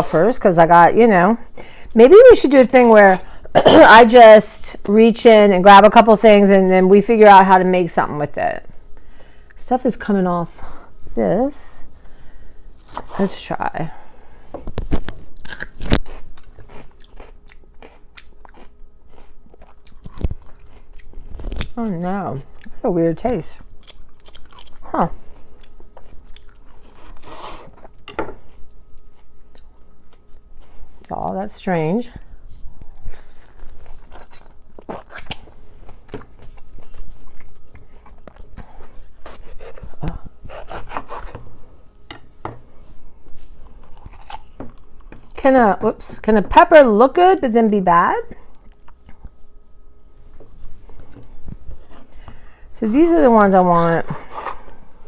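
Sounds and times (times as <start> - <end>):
chewing crunches: 15.3 - 21.8, 23.8 - 24.9, 25.5 - 27.2, 33.4 - 38.8, 43.6 - 45.4, 48.5 - 49.4
peppers being cut on a board: 39.2 - 41.4.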